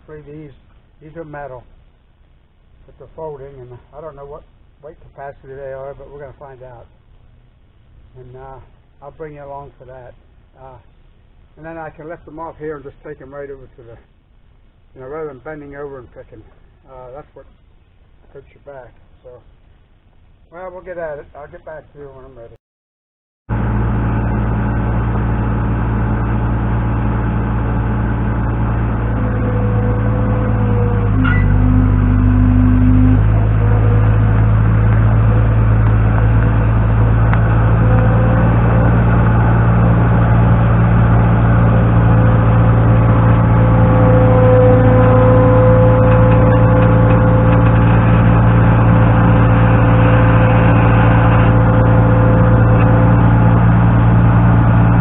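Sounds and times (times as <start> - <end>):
engine running under load: 23.5 - 55.0
short tone: 26.9 - 40.2, 41.4 - 55.0.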